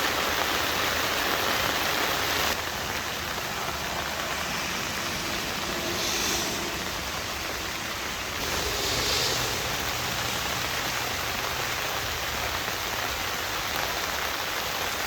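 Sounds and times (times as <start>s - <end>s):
heavy rain: 0.0s - 15.0s.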